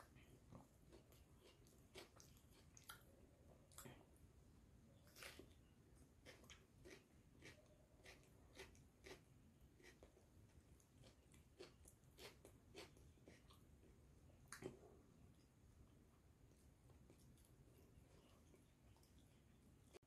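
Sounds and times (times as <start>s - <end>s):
person chewing: 0.4s - 4.1s, 5.0s - 13.9s.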